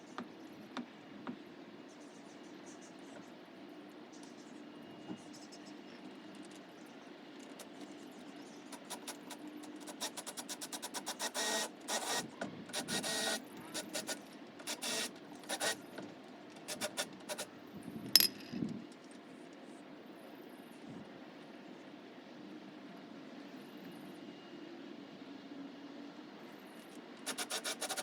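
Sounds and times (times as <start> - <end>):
sharp metal knock: 18.2 - 18.6.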